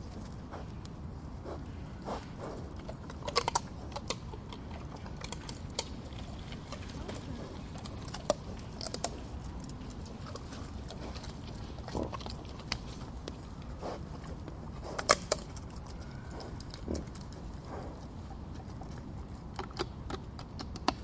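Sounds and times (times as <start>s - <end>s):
pig grunting and snuffling: 0.0s - 21.0s
small wet clicks: 18.6s - 21.0s.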